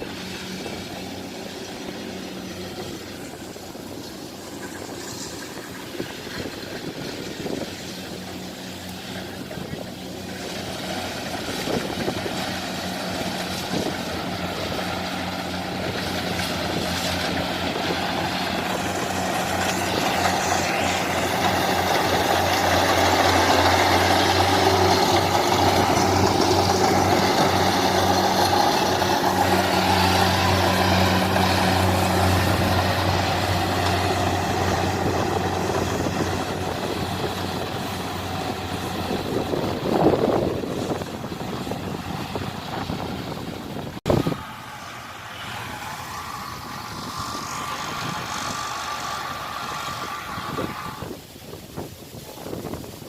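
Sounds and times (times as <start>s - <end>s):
large diesel engine running: 0.0s - 53.0s.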